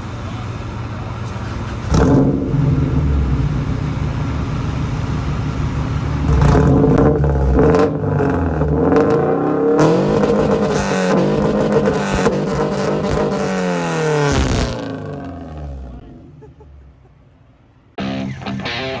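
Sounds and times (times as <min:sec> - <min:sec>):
car engine revving: 0:01.2 - 0:16.4.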